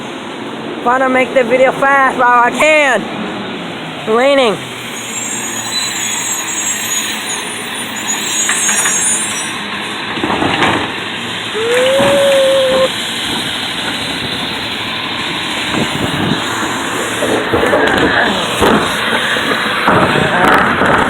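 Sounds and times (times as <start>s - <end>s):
garbage truck clanks: 8.2s - 12.2s, 13.0s - 21.0s
rain hiss: 11.2s - 20.3s
rising whining tone: 11.5s - 13.0s.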